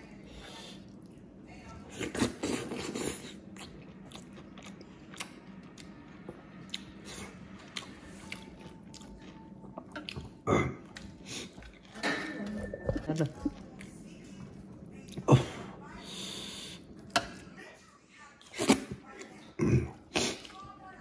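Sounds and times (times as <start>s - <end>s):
person chewing with mouth smacks: 2.0s - 12.0s.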